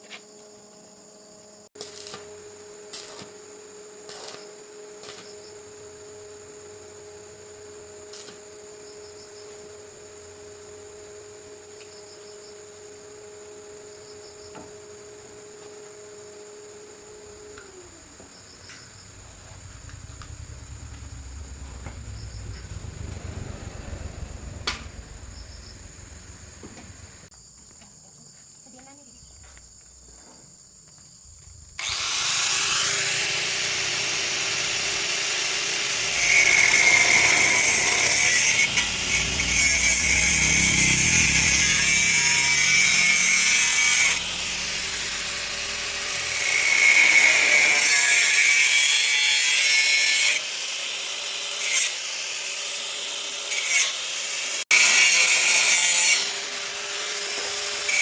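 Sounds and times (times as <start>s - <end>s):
power tool running: 16.4s - 27.3s, 31.8s - 58.0s
low rumble: 18.0s - 27.3s, 36.0s - 46.8s.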